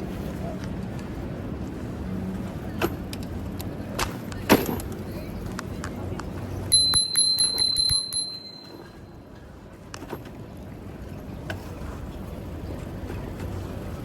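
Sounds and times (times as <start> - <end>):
low street noise: 0.0 - 14.0
bicycle bell ringing rapidly: 6.7 - 9.0.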